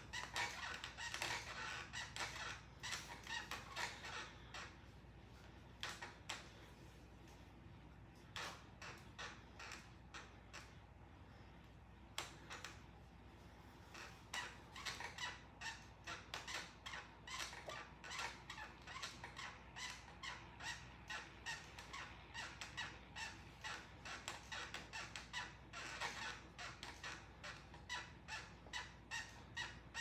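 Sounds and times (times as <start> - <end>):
exercise bike squeaking: 0.0 - 6.9, 13.6 - 30.0.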